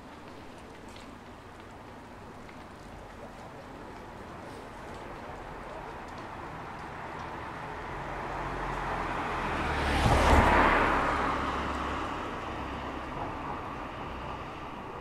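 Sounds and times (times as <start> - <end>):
car passing by: 6.6 - 15.0.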